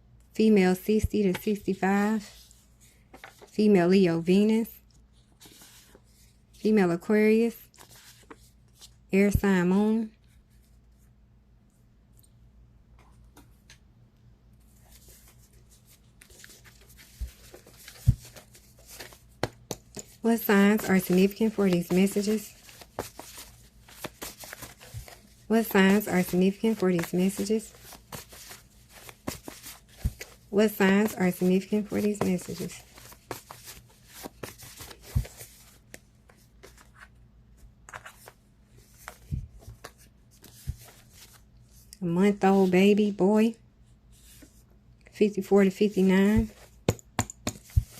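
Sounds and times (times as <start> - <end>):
cards rustling and clicking: 14.9 - 37.2.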